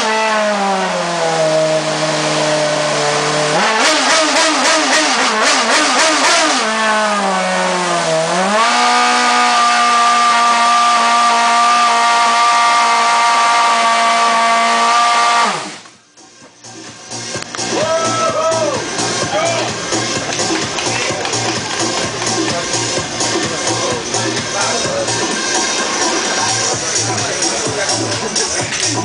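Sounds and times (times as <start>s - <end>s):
racing car engine running: 0.0s - 29.0s.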